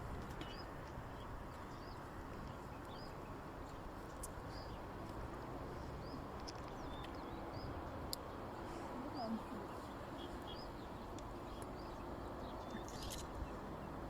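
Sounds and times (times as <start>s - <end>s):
small bird chirping: 9.2s - 13.6s.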